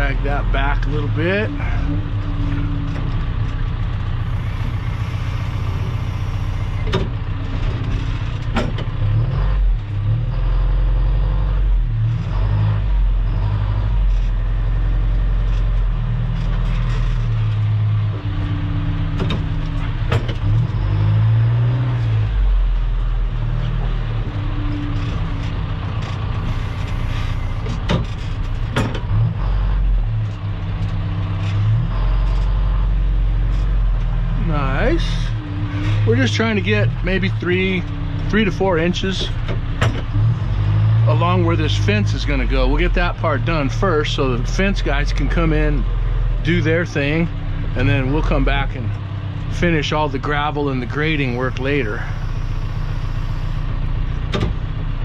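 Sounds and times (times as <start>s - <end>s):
earthmoving machine engine droning: 0.0s - 12.1s, 12.8s - 55.0s
sharp knocks and clanks: 6.8s - 9.1s, 18.1s - 20.8s, 27.6s - 29.4s, 39.2s - 40.4s, 54.3s - 54.6s.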